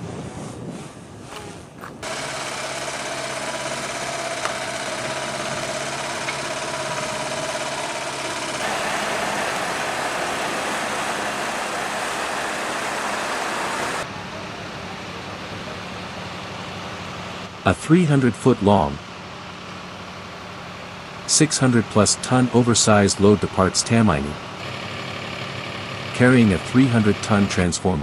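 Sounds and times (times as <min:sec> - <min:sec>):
rolling and wind noise: 0:00.0 - 0:14.3
heavy truck engine running: 0:02.0 - 0:28.0.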